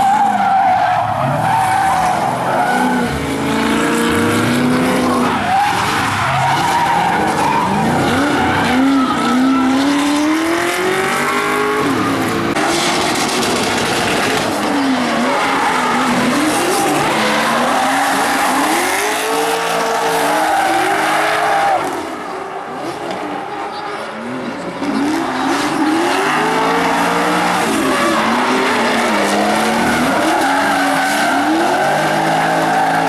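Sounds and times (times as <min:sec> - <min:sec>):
tyres screeching: 0:00.0 - 0:13.0, 0:24.7 - 0:33.0
car engines revving: 0:00.0 - 0:33.0.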